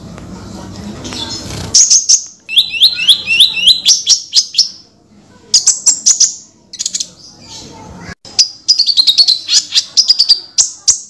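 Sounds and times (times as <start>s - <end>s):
bird chirping: 1.0s - 4.9s, 5.5s - 11.0s.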